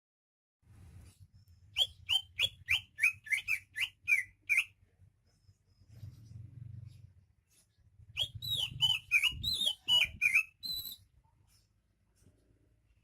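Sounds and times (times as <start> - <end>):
bird whistling descending notes: 8.2 - 11.0.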